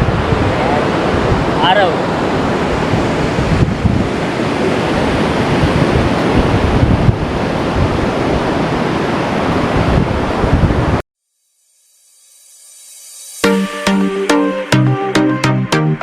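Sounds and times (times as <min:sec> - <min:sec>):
surf washing onto beach: 0:00.0 - 0:11.0
wind buffeting microphone: 0:00.0 - 0:11.0.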